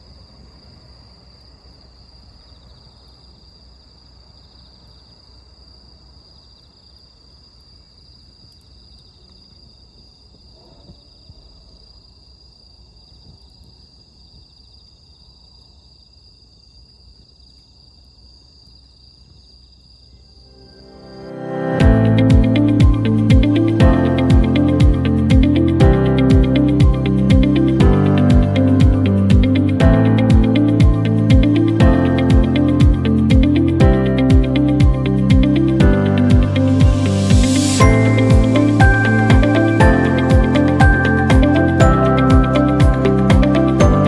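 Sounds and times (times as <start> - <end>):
crickets trilling: 0.0 - 20.8.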